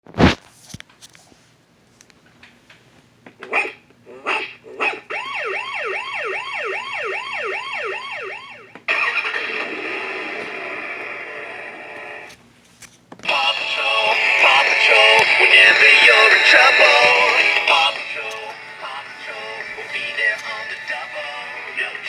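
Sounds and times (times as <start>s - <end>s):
recorded dog barks: 3.5s - 5.1s
electronic siren wailing: 5.1s - 10.5s
loud noisy electronic sound: 7.0s - 12.3s.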